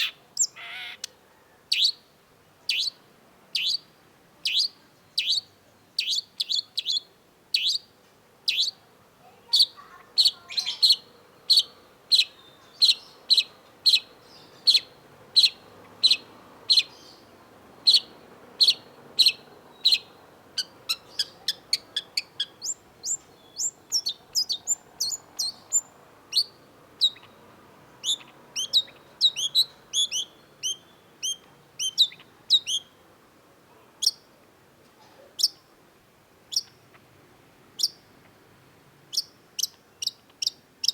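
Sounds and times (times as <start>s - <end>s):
shrike singing: 9.6s - 27.4s, 28.0s - 33.0s.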